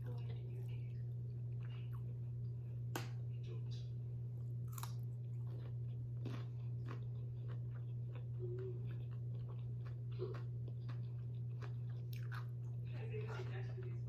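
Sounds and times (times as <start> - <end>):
steady low hum: 0.0 - 14.0
crunching cucumber: 4.6 - 12.8.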